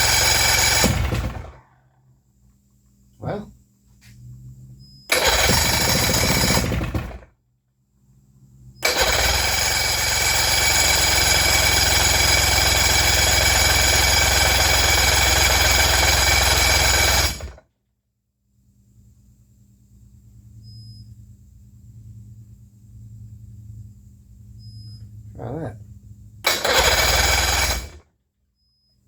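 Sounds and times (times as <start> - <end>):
boat motor cranking: 5.1 - 7.2, 8.8 - 17.6, 26.4 - 28.0.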